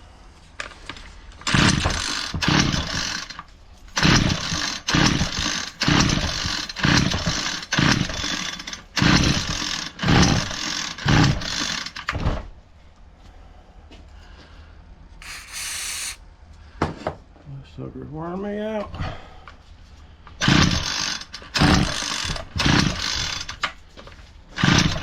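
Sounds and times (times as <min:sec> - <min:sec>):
string trimmer rope pulls: 0:04.0 - 0:08.1, 0:15.2 - 0:16.2
engine turning over: 0:04.0 - 0:08.3, 0:20.4 - 0:23.5.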